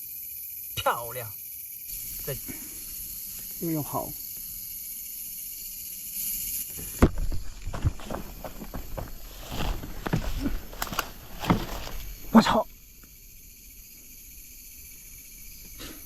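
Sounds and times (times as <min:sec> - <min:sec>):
high insect hiss: 0:00.0 - 0:16.0
footsteps rustling on leaf litter: 0:07.4 - 0:12.4.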